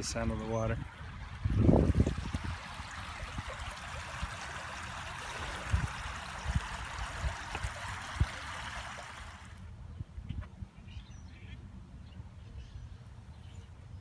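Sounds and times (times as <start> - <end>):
stream water rushing: 0.0 - 9.6.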